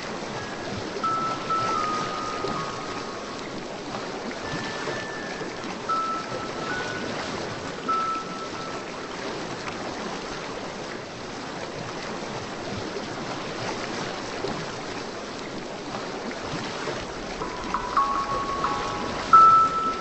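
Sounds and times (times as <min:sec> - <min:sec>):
rushing water: 0:00.0 - 0:20.0
bell-like music notes: 0:00.3 - 0:03.8, 0:04.4 - 0:09.5, 0:17.4 - 0:20.0.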